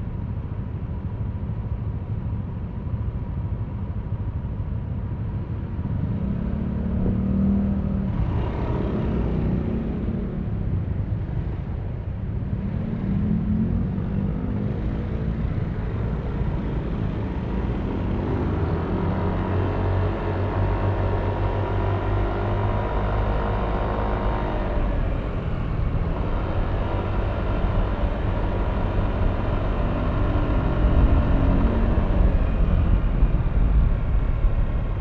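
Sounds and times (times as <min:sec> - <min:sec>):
wind noise on microphone: 0:23.8 - 0:35.0.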